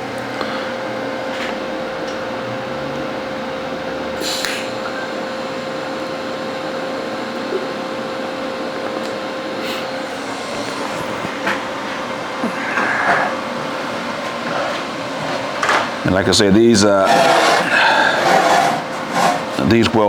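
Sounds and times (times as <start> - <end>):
welding arc hissing: 4.2 - 19.9.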